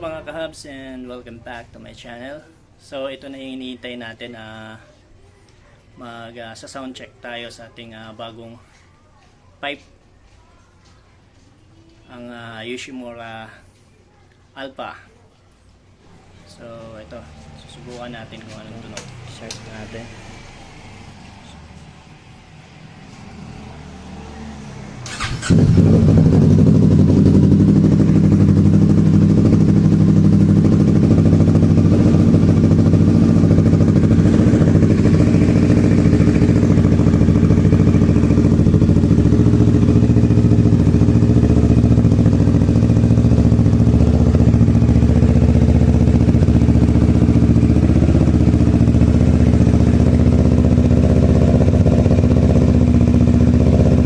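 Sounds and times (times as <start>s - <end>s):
motorcycle engine idling: 25.1s - 54.0s.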